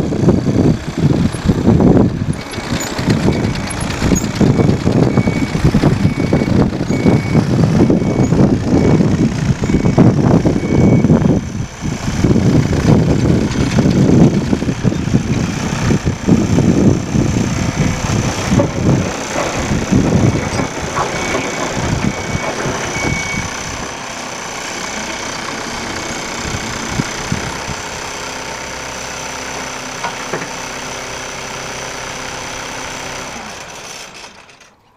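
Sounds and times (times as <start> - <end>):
diesel engine revving: 0.0 - 34.8
high beeping tone: 4.5 - 11.2, 21.2 - 23.5.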